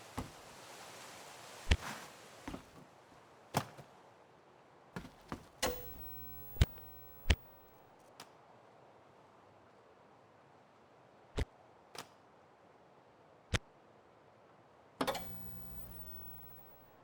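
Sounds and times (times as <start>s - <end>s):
sharp clicks and knocks: 5.0s - 7.6s, 15.0s - 16.8s
faint hum: 5.6s - 7.8s, 15.0s - 17.0s
thin high tone: 15.1s - 17.0s.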